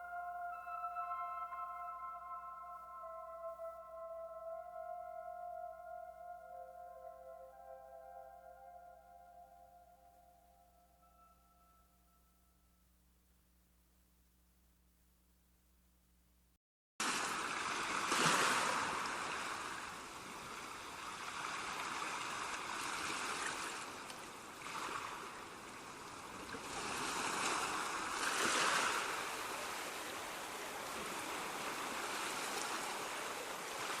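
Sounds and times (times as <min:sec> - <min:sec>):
ocean waves breaking on shore: 0:17.0 - 0:34.0.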